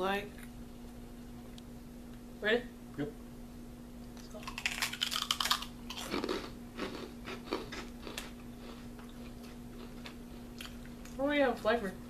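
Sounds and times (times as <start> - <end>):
crunchy crackers being chewed: 4.4 - 11.2.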